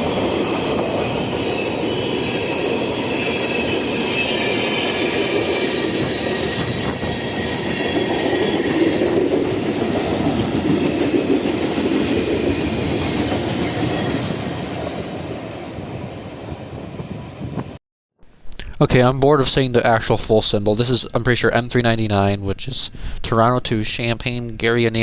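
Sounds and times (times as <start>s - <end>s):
high wheel squeal: 0.0s - 9.2s, 12.6s - 14.7s
train cars rumbling on rails: 0.0s - 17.8s.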